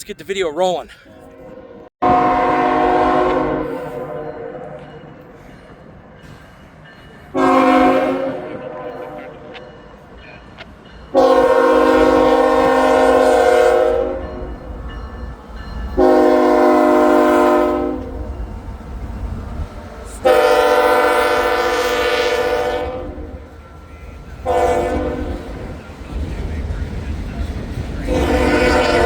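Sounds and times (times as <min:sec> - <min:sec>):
locomotive air horn blasts: 0:01.2 - 0:04.7, 0:07.3 - 0:09.2, 0:11.1 - 0:14.5, 0:16.0 - 0:18.2, 0:20.2 - 0:23.4, 0:24.4 - 0:25.6, 0:28.0 - 0:29.0
train low rumble: 0:01.5 - 0:29.0.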